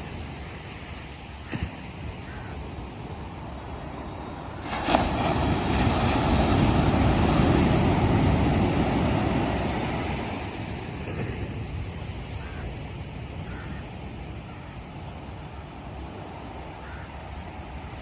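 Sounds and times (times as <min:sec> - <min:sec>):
ocean wave breaking: 0:00.0 - 0:13.3
wave wash: 0:00.0 - 0:18.0.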